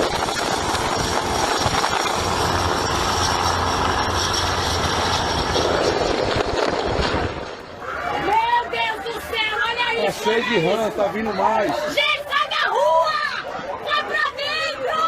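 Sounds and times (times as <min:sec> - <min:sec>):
helicopter engine and rotor: 0:00.0 - 0:06.5.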